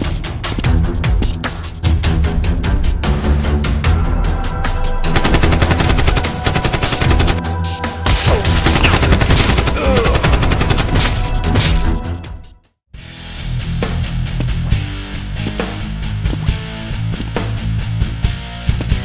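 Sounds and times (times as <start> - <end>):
background music: 0.0 - 19.0
automatic gunfire: 5.2 - 7.4.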